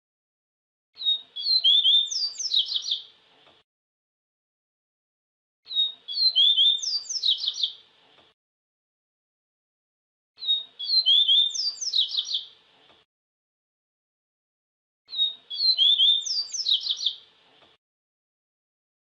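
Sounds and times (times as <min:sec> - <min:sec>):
bird singing whistled notes: 0:01.0 - 0:03.1, 0:05.7 - 0:07.8, 0:10.4 - 0:12.5, 0:15.1 - 0:17.2.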